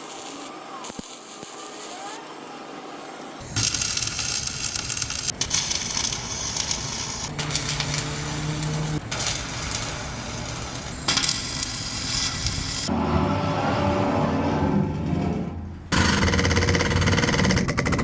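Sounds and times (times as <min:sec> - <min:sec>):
welding arc crackling: 0:00.0 - 0:02.2, 0:03.0 - 0:12.9
machine hum: 0:03.4 - 0:18.0.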